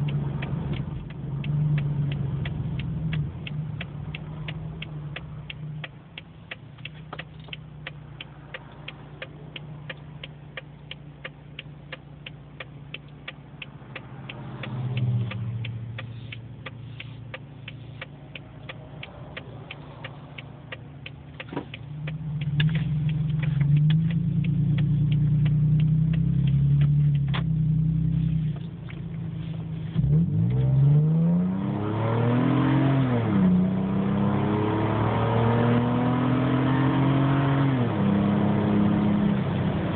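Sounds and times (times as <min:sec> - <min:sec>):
regular ticking: 0:00.0 - 0:31.0.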